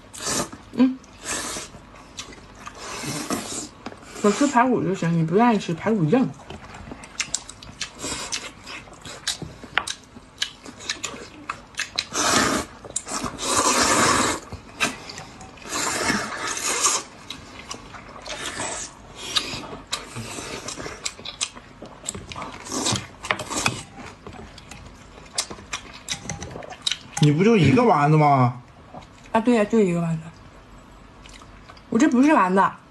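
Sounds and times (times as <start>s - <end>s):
chewing and slurping food: 6.4s - 27.4s.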